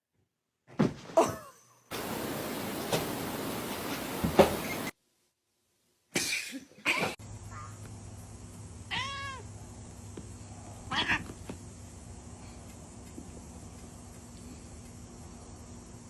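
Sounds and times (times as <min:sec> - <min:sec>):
cat meowing: 0:08.9 - 0:09.5, 0:10.9 - 0:11.3.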